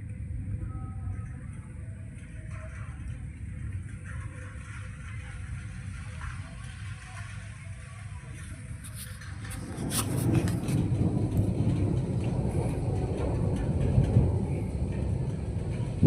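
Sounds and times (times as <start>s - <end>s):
thunder rumbling: 0.0s - 16.0s.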